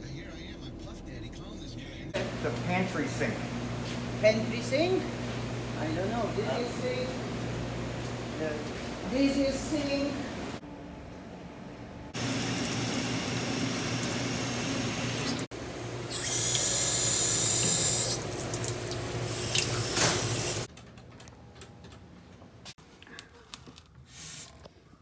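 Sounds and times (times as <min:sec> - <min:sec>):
faucet water running into sink: 0:12.2 - 0:15.5, 0:16.1 - 0:20.7.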